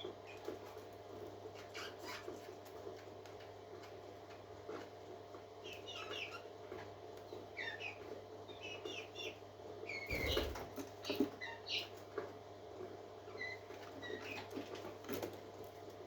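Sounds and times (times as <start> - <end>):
parakeets chirping: 7.6 - 11.9.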